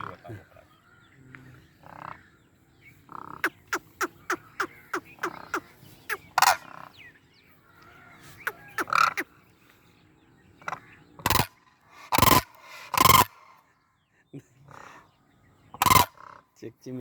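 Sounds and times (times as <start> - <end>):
cranes calling loudly: 0.0 - 7.0, 7.6 - 9.4, 10.6 - 13.7, 14.7 - 15.1, 15.7 - 16.6.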